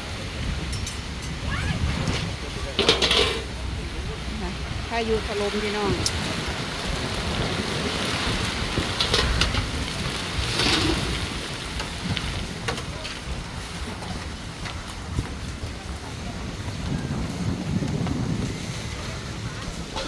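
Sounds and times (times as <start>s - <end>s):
heavy rain pouring: 0.0s - 20.0s
raindrops tapping on surfaces: 4.8s - 19.0s.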